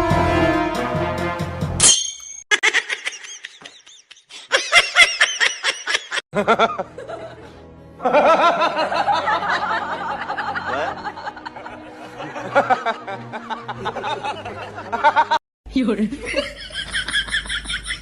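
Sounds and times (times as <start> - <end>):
music: 0.0 - 1.8, 6.4 - 15.4
high-pitched laughing: 2.5 - 6.2.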